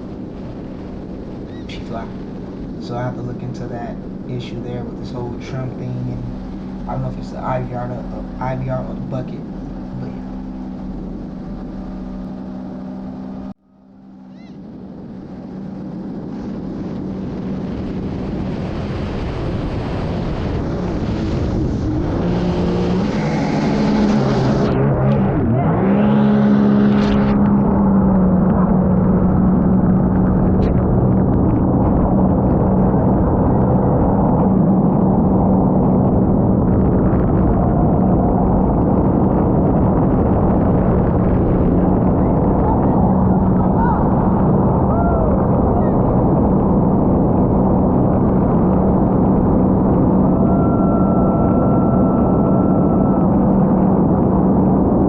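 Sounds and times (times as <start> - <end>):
personal watercraft engine: 0.0 - 55.0.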